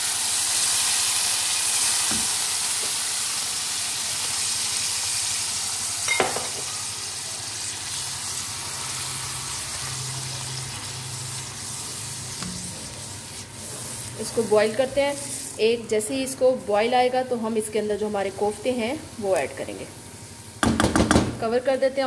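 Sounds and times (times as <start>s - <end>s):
curry sizzling in a pan: 0.0s - 16.0s.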